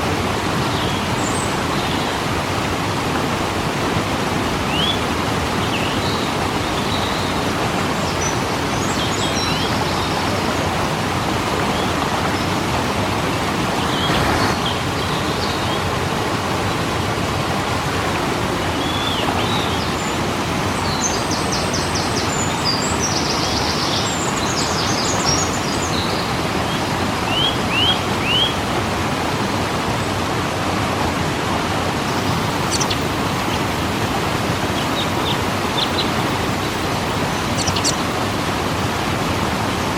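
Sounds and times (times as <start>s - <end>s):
waterfall roaring: 0.0s - 39.9s
small birds chirping: 32.1s - 33.7s, 34.6s - 38.1s.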